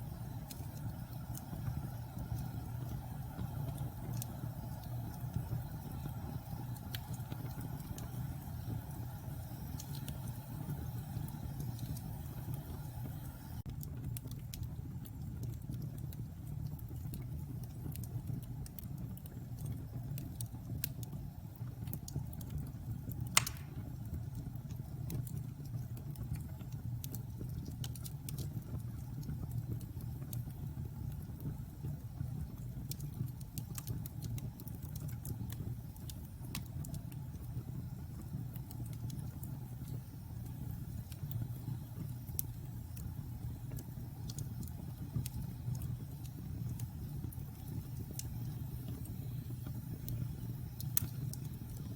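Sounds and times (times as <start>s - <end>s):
wood fire crackling: 0.0s - 51.9s
loud pop of fire: 23.4s - 24.0s.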